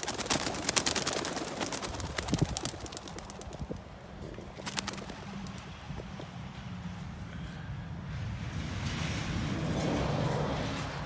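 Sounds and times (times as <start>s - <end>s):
pigeon wings flapping: 0.0s - 6.2s.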